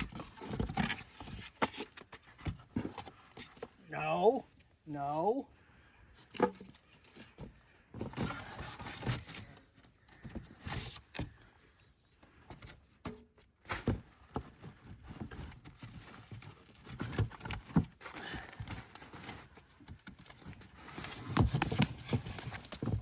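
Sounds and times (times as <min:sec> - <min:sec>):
cardboard box being handled: 0:13.8 - 0:23.0.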